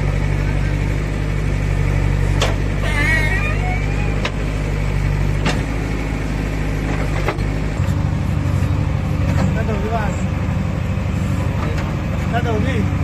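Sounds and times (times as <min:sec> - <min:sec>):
diesel engine running: 0:00.0 - 0:13.0
wavering high tone: 0:02.8 - 0:04.2.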